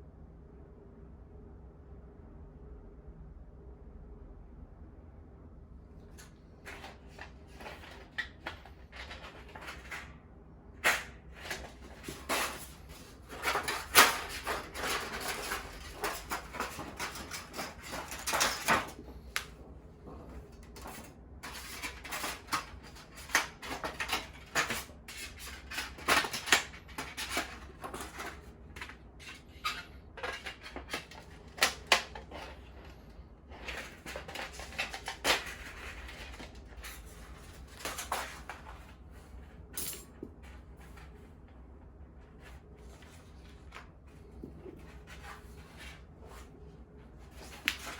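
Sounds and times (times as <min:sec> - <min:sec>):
objects being handled: 0:10.8 - 0:47.9.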